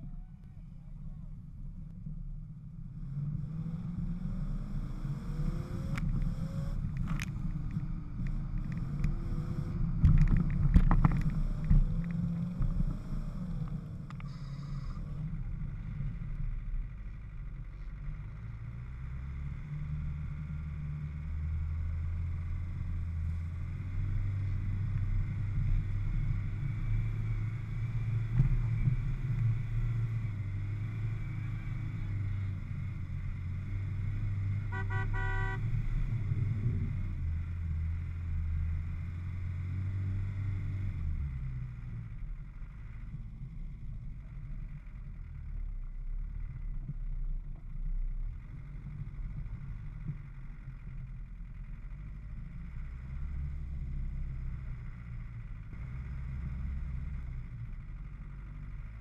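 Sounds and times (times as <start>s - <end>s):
off-road engine running: 0.0s - 59.0s
vehicle horn beeping: 34.7s - 35.7s.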